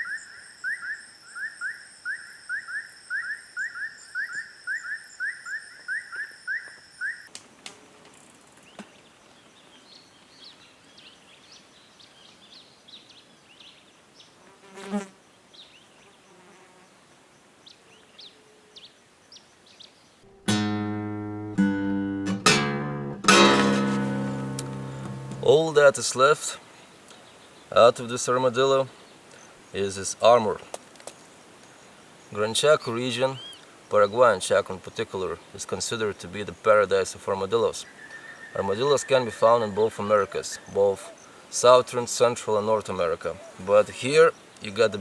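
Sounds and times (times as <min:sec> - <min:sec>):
high-pitched insect trills: 0:00.0 - 0:07.3
insects chirping: 0:00.0 - 0:07.4, 0:23.9 - 0:45.0
plucked guitar music: 0:20.3 - 0:25.6.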